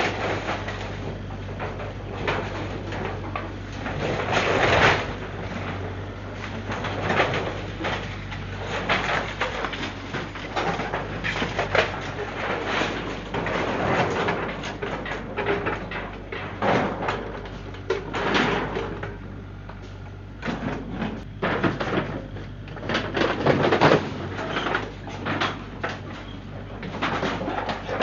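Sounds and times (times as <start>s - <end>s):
debris knocking and clattering: 0.0s - 19.0s
steady low hum: 0.0s - 28.0s.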